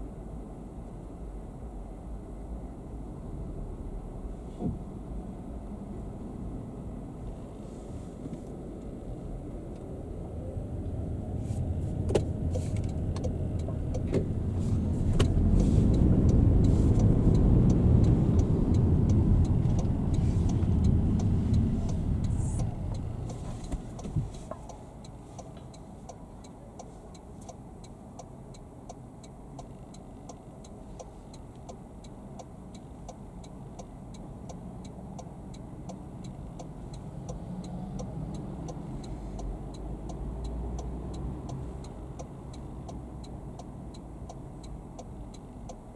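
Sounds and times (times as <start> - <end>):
road and engine rumble in car: 0.0 - 45.9
turn signal relay ticking: 11.9 - 45.9.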